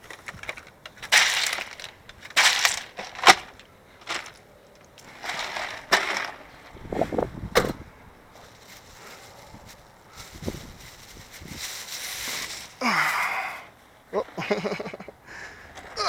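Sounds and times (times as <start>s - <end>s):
crinkling and rustling: 0.0s - 12.8s.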